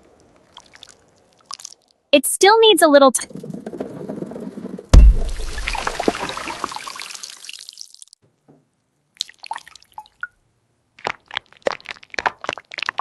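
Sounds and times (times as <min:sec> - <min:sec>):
dripping clicks and small pops: 0:09.2 - 0:10.4, 0:11.0 - 0:13.0.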